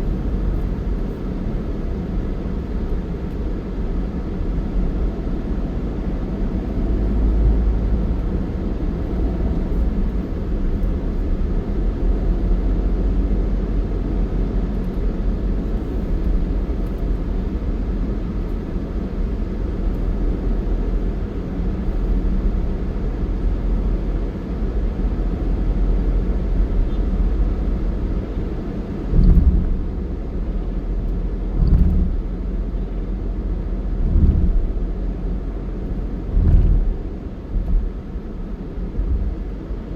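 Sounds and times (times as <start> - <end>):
road vehicle rumble: 0.0 - 39.9
heavy low thumps: 29.1 - 30.0, 31.4 - 32.5, 33.8 - 35.2, 35.8 - 38.3.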